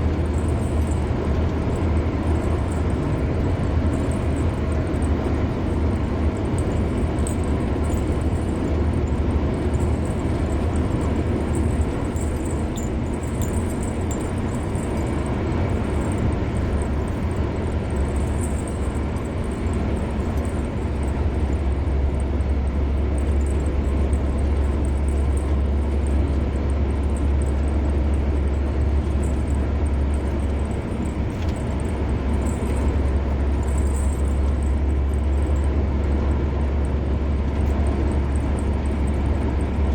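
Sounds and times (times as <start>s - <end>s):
car tyre and engine rumble: 0.0s - 39.9s.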